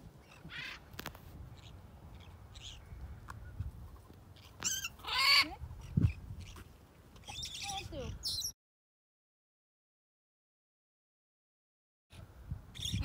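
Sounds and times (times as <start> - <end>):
birds calling in flight: 0.2 - 0.9, 1.5 - 8.5, 12.8 - 13.0.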